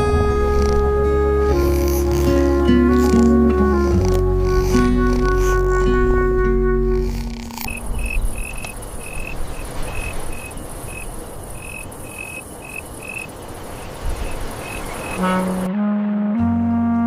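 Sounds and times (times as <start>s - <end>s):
insects chirping: 6.9s - 15.7s.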